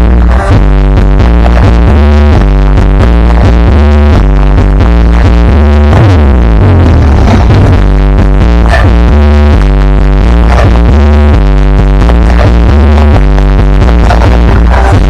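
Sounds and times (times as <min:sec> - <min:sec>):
loud electronic dance music: 0:00.0 - 0:15.0.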